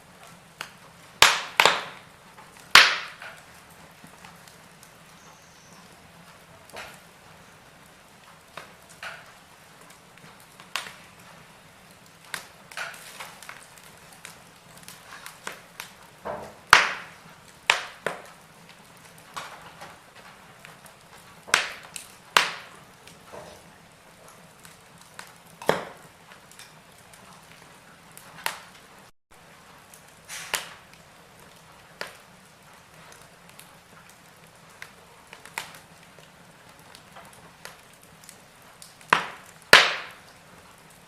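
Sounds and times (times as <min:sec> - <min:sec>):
faint steady hiss: 0:00.0 - 0:41.0
wood fire crackling: 0:00.0 - 0:41.0.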